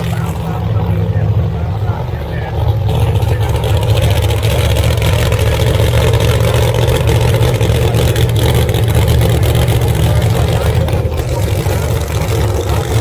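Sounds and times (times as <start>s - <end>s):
drag race car engines rumbling: 0.0s - 13.0s.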